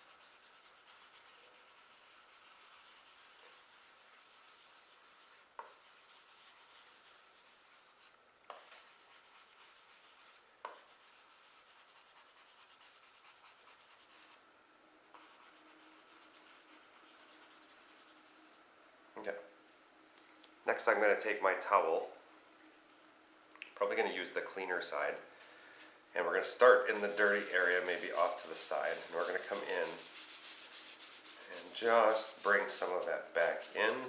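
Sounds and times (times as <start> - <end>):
rubbing on drawing paper: 0.0 - 14.4, 15.1 - 18.6, 26.4 - 34.0.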